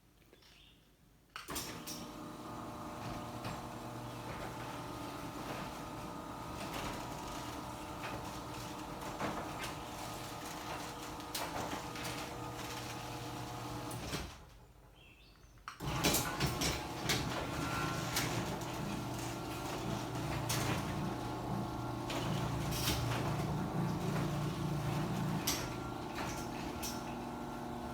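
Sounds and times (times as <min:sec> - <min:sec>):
garage door running along track: 0:01.5 - 0:14.7, 0:15.8 - 0:27.9
motor hum: 0:02.0 - 0:14.2, 0:15.8 - 0:27.9
rollers clicking: 0:02.3 - 0:14.4, 0:15.8 - 0:27.9.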